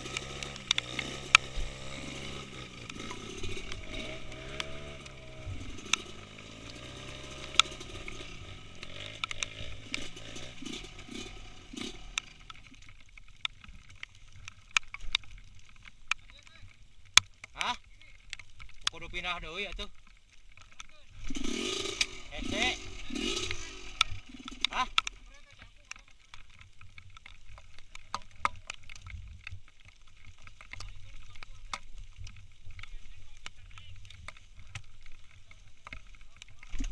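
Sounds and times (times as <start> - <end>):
small motorcycle engine revving: 0.0 - 12.6, 21.2 - 25.1
sharp clicks and knocks: 0.0 - 29.7
raindrops tapping on camera: 0.0 - 36.9.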